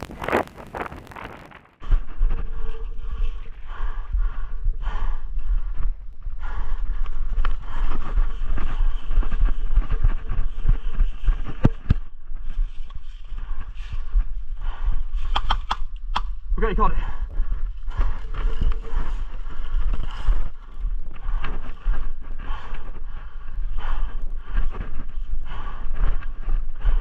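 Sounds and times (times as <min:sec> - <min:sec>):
wind rumbling on microphone: 0:00.0 - 0:27.0
sharp clicks: 0:15.2 - 0:16.4.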